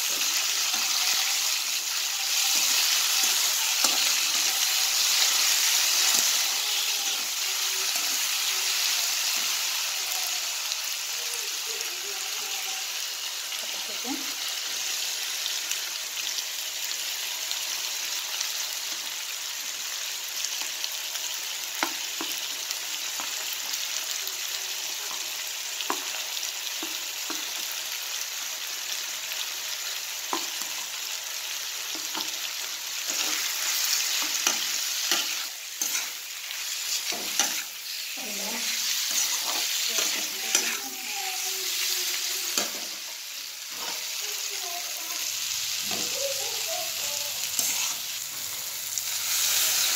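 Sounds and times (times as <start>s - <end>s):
food sizzling in oil: 0.0s - 49.9s
spatula scraping a pan: 33.0s - 44.2s, 46.9s - 48.5s.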